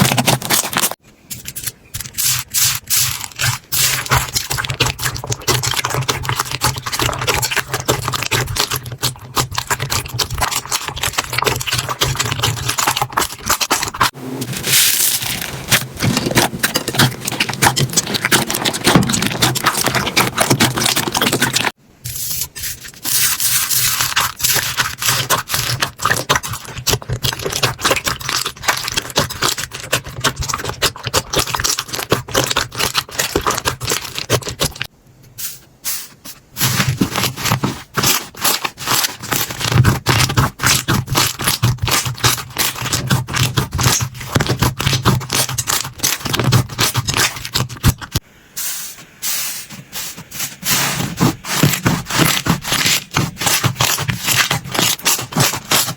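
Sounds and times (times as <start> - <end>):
slime squished by hand: 36.6 - 48.2, 50.6 - 55.9.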